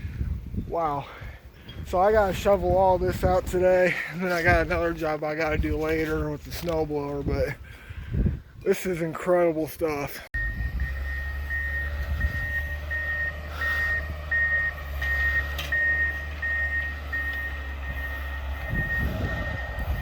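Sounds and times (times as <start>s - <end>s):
heavy vehicle engine rumble: 10.4s - 20.0s
reversing alarm beeping: 10.4s - 20.0s.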